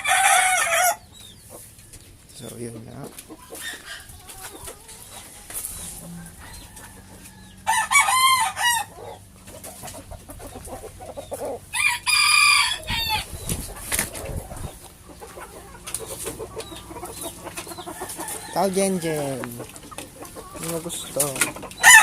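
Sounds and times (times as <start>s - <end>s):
rooster crowing: 0.0s - 1.1s, 5.8s - 9.2s, 11.6s - 13.5s, 17.8s - 19.5s, 21.8s - 22.0s
soft chicken clucking: 0.0s - 8.0s, 8.6s - 22.0s.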